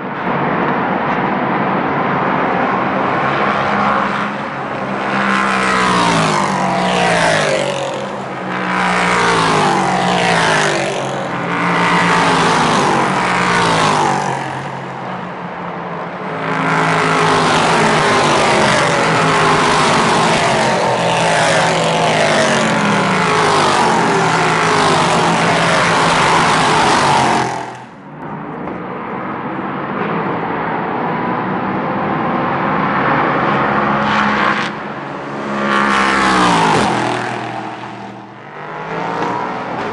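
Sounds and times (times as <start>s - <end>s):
race cars passing at speed: 0.0s - 39.9s.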